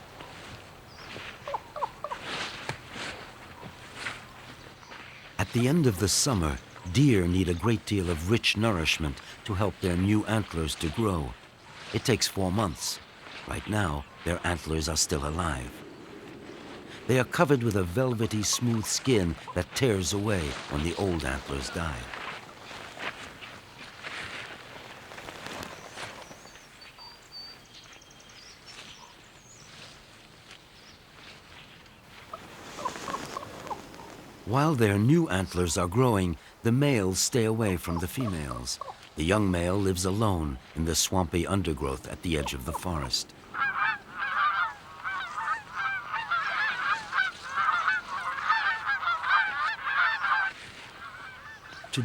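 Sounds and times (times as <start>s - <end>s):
rustling in undergrowth: 0.0s - 52.0s
small birds chirping: 0.1s - 24.0s, 24.7s - 52.0s.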